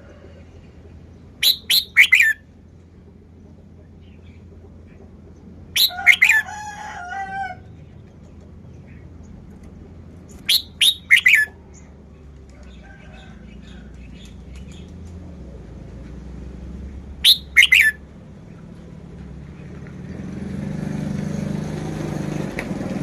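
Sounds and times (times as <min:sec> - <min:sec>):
bulbul singing: 0:01.1 - 0:02.6, 0:05.4 - 0:06.5, 0:10.2 - 0:12.0, 0:17.2 - 0:18.6
faint bird chirps: 0:01.4 - 0:02.4, 0:05.8 - 0:06.4, 0:10.3 - 0:11.9, 0:17.2 - 0:18.0.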